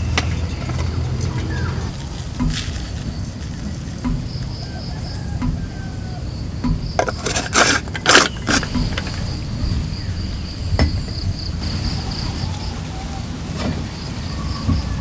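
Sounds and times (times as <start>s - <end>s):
rustling clatter: 7.0s - 9.4s.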